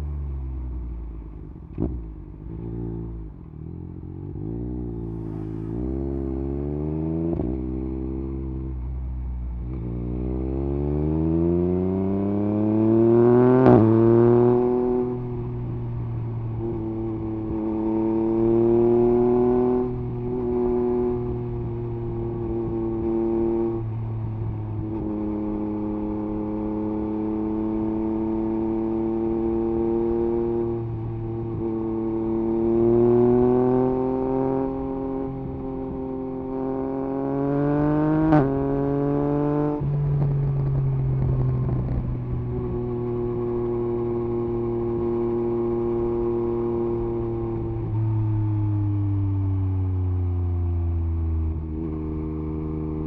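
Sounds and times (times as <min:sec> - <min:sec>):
motorcycle engine revving: 0:01.7 - 0:48.9.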